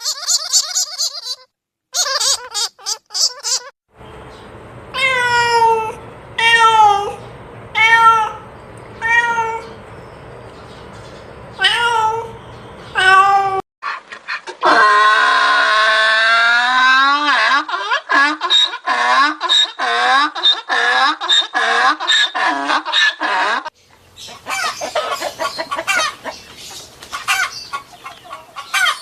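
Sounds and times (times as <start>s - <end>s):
animal long drawn-out cry: 14.6s - 23.7s.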